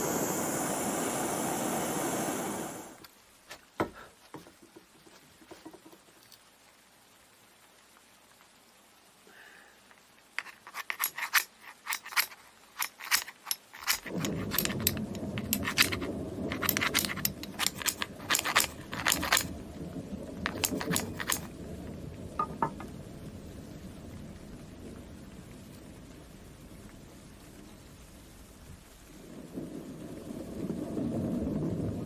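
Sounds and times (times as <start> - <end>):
low rumbling noise: 0.0 - 3.0, 13.8 - 32.0
metallic clinks and scrapes: 10.4 - 19.5, 20.4 - 21.5.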